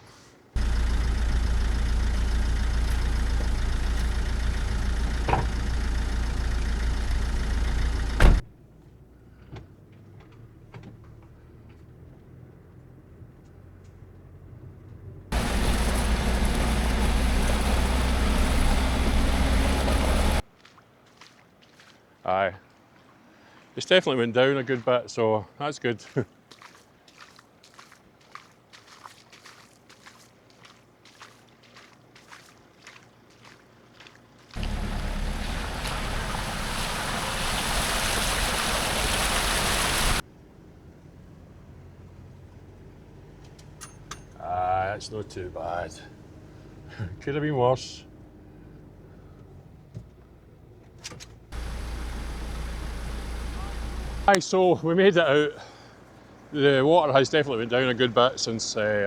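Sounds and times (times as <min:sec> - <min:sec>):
vehicle rushing through floodwater: 0:00.6 - 0:08.4, 0:15.3 - 0:20.4, 0:32.9 - 0:43.3, 0:51.5 - 0:54.4, 0:55.1 - 0:58.4
faint low engine hum: 0:00.6 - 0:20.5, 0:30.6 - 0:59.0
faint footsteps: 0:26.0 - 0:36.0.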